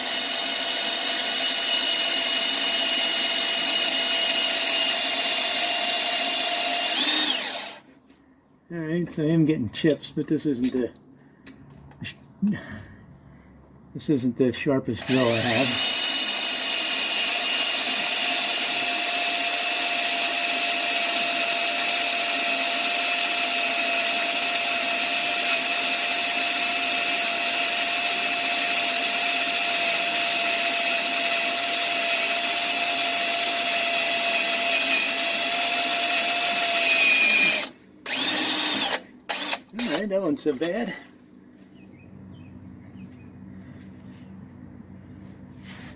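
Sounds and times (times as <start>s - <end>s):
electric drill drilling metal: 0.0s - 7.8s, 15.0s - 40.1s.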